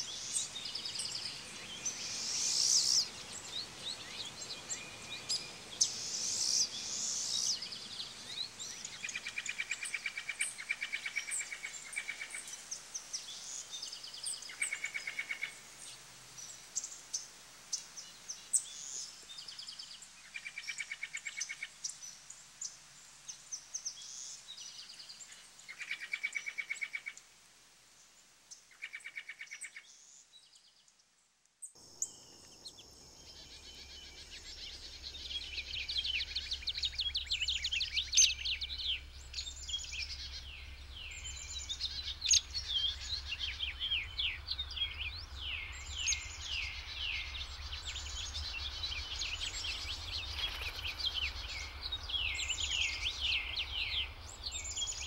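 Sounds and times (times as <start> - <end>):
chorus of bird chirps: 0.0 - 27.2, 28.7 - 31.0, 31.7 - 55.0
low steady hum: 31.8 - 55.0
birds chattering trills: 31.9 - 55.0.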